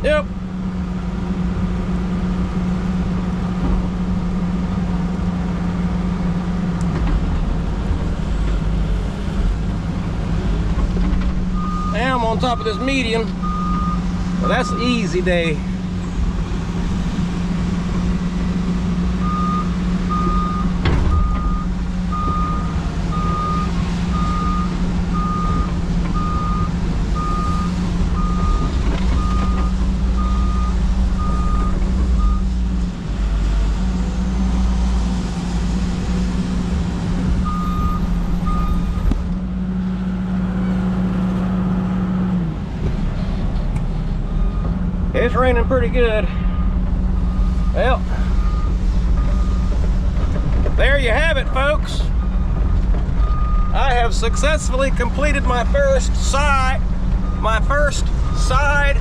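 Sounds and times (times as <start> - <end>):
heavy diesel engine running: 0.0 - 59.0
backup alarm beeping: 11.6 - 15.2, 19.2 - 32.5.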